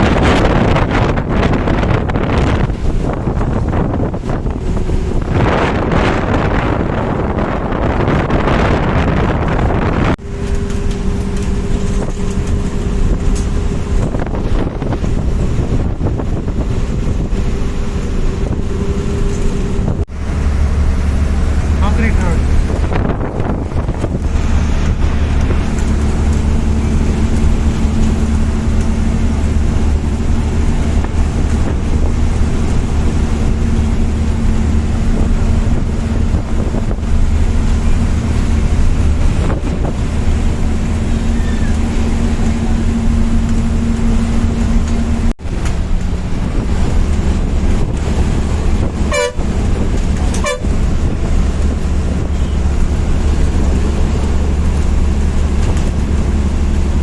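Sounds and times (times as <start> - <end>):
bus engine and road noise: 0.0 - 57.0
bus horn toots: 48.8 - 51.4.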